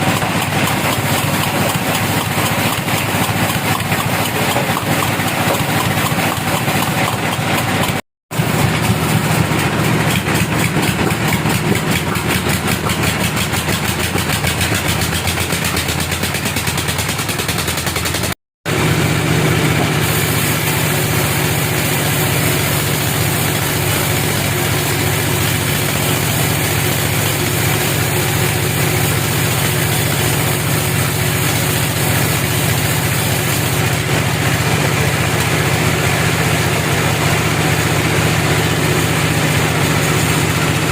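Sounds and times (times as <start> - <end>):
sawmill machinery running: 0.0 - 40.9.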